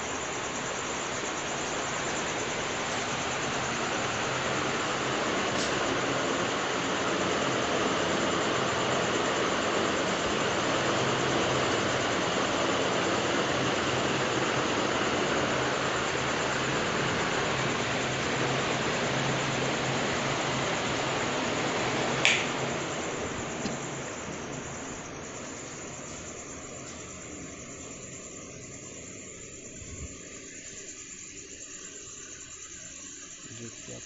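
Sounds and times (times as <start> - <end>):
ceiling fan air rushing: 0.0 - 34.0
fan motor hum: 0.0 - 34.0
sharp click: 22.2 - 22.5.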